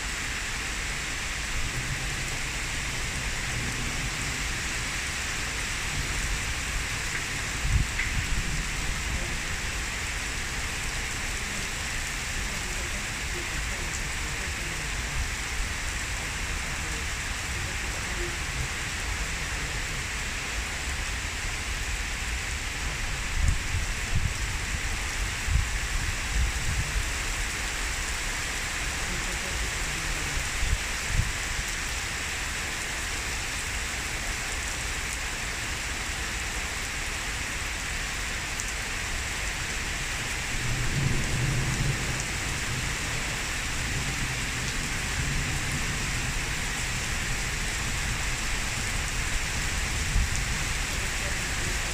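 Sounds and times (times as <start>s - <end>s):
heavy rain splashing: 0.0s - 51.9s.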